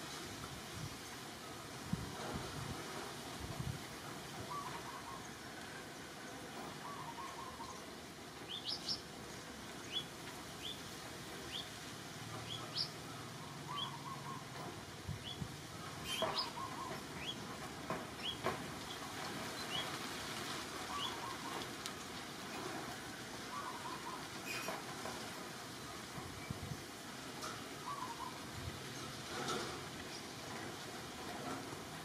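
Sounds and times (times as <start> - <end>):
birds chirping: 12.4 - 14.6, 15.2 - 17.6, 18.2 - 20.0, 20.9 - 21.7.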